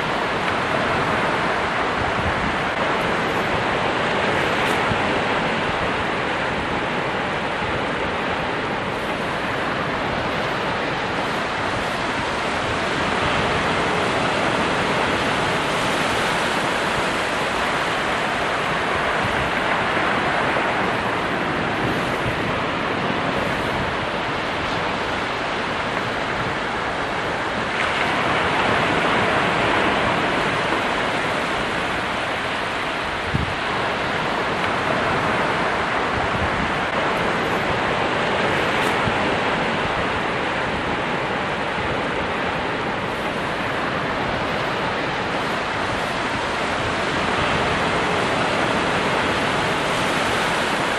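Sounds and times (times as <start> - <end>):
ocean waves breaking on shore: 0.0 - 50.9.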